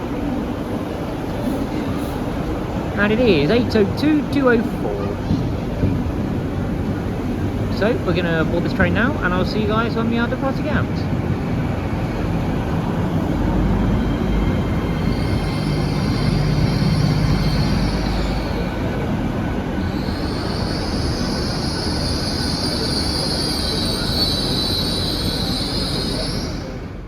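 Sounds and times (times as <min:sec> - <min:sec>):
train rumbling over rails: 0:00.0 - 0:27.0
high wheel squeal: 0:13.8 - 0:27.0.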